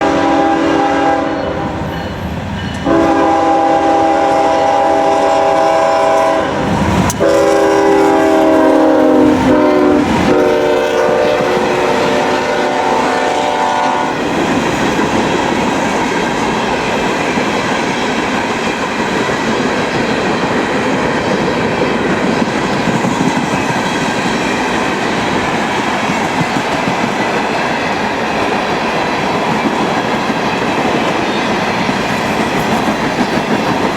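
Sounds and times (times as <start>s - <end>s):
train chime horn blasts: 0.0s - 14.2s
train wheels rumbling and clattering: 0.0s - 33.9s.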